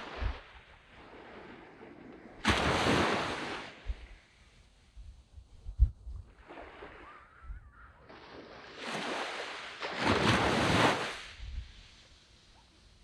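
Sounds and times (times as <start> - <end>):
waves washing onto sandy beach: 0.0 - 4.5, 8.0 - 13.0
wind thump on microphone: 0.1 - 0.5, 3.8 - 4.2, 5.4 - 6.4.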